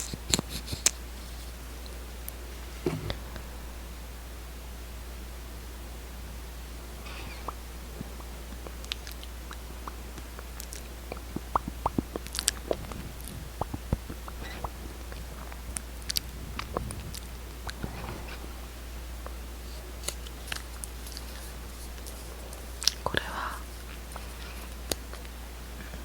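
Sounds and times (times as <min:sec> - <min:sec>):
steady low hum: 0:00.0 - 0:26.0
lips smacking: 0:07.0 - 0:25.3.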